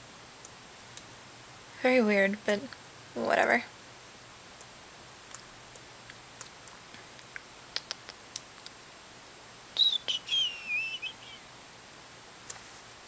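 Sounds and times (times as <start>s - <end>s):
faint clicks: 5.3s - 8.8s
bird chirping: 9.8s - 11.5s.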